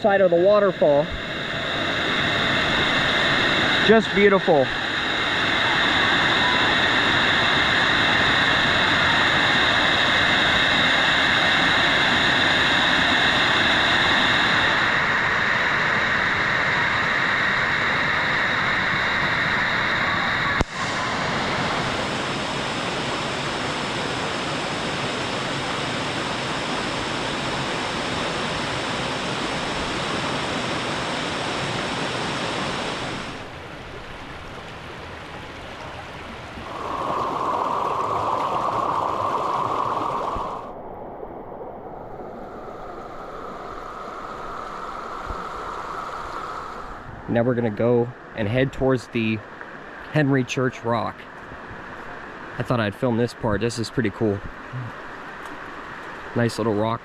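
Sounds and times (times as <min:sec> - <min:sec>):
waterfall rushing: 0:00.2 - 0:15.0, 0:34.2 - 0:40.7.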